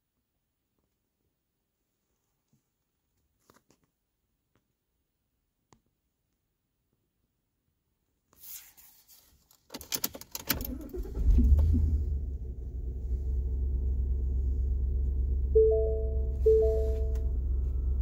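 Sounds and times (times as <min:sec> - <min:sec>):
vehicle engine starting and running: 0:10.4 - 0:18.0.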